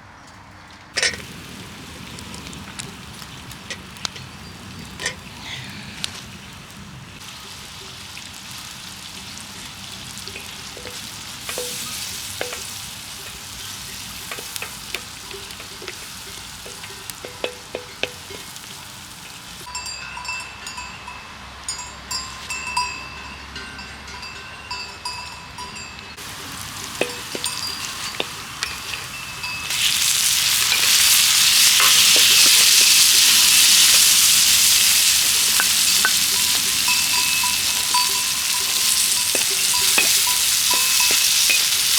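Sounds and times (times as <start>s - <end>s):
food cooking in a pot: 1.0s - 19.7s, 26.2s - 41.9s
loud steady sizzle: 1.0s - 19.7s, 26.2s - 41.9s
utensil clicking against pot: 10.3s - 18.8s, 26.6s - 41.9s.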